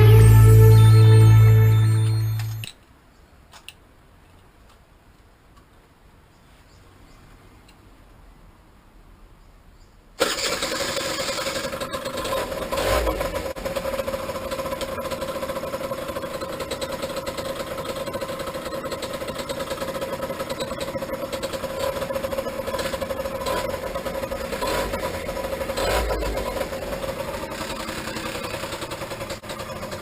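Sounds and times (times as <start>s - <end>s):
small engine starting and idling: 10.2s - 30.0s.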